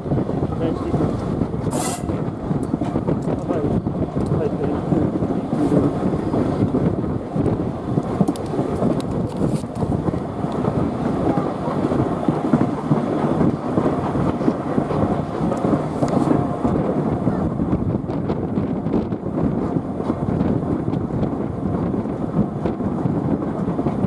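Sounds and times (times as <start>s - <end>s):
railway carriage rumbling: 0.0s - 24.0s
wheel and rail clicks: 1.1s - 18.7s.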